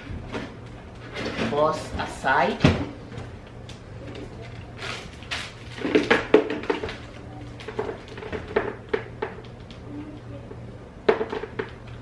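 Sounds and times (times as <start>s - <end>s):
low steady hum: 0.0s - 12.0s
plastic parts knocking and clattering: 4.4s - 9.8s, 11.0s - 12.0s.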